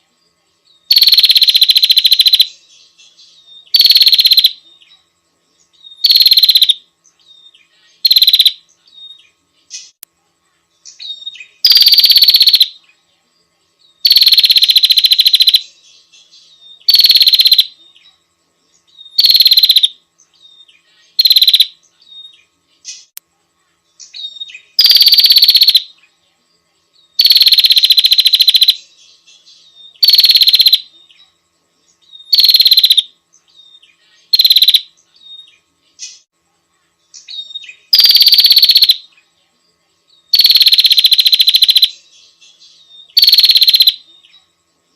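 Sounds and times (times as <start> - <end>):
bird call high rattling trills: 0.9 - 4.6, 5.9 - 6.8, 8.0 - 8.6, 10.8 - 12.8, 14.0 - 17.8, 19.0 - 23.2, 24.0 - 25.9, 27.2 - 30.9, 32.2 - 36.3, 37.1 - 39.0, 40.3 - 44.0.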